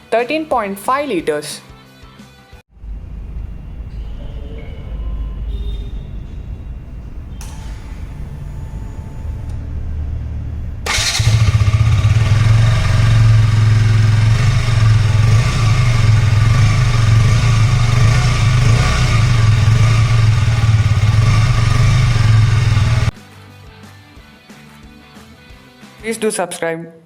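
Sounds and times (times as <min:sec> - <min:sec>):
motorcycle engine starting and idling: 0:02.8 - 0:23.2.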